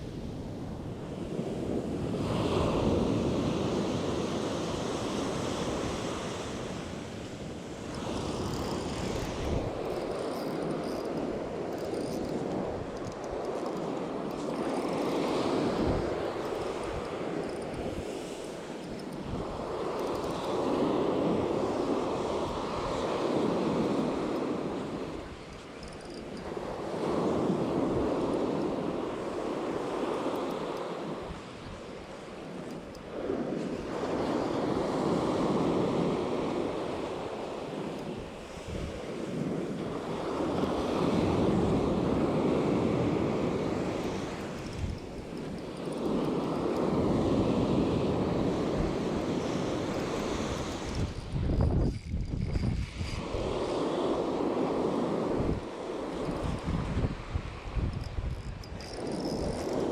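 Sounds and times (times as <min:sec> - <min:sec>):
waves washing on shore: 0:00.0 - 0:51.8, 0:52.7 - 0:59.9
wind buffeting microphone: 0:00.0 - 0:59.9.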